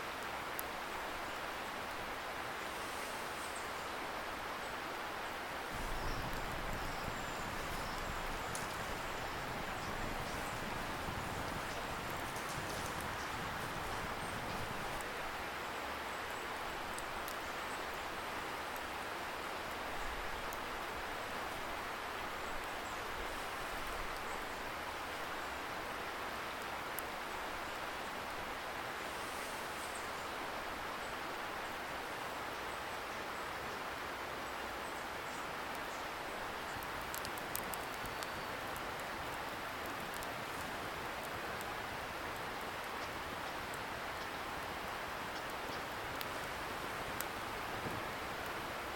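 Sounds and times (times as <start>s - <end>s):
distant river rushing: 0.0s - 16.7s
campfire crackles: 0.0s - 48.9s
distant river rushing water: 0.0s - 48.9s.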